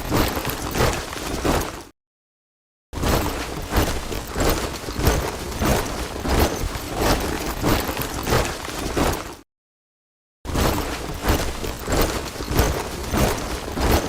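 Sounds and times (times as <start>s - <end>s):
soldiers marching in step: 3.2s - 9.4s, 10.8s - 14.0s.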